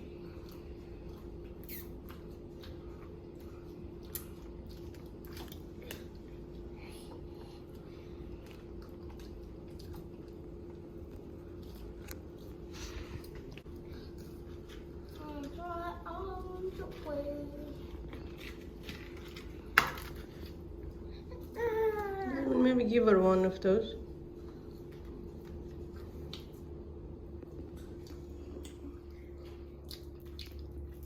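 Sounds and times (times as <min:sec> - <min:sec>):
children chewing food: 0:00.0 - 0:22.6, 0:24.4 - 0:31.0
wet mouth clicks and smacks: 0:29.8 - 0:30.8.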